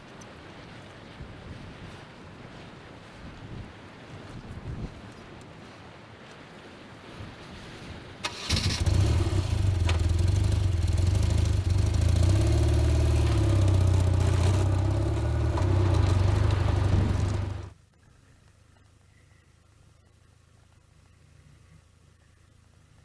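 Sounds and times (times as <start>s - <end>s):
motorcycle engine idling: 8.8s - 17.7s.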